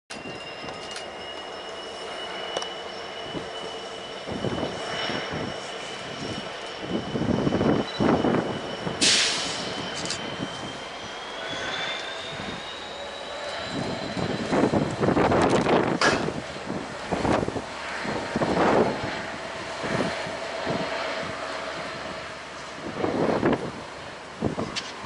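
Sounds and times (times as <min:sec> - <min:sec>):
diesel locomotive engine rumble: 0:00.1 - 0:25.0
sharp hissing burst: 0:09.0 - 0:09.8.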